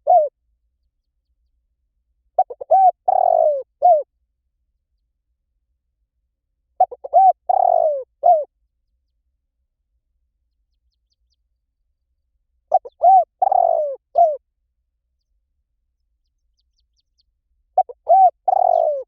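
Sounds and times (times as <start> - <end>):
bird calling low notes: 2.4 - 4.1, 6.8 - 8.5, 17.8 - 19.0.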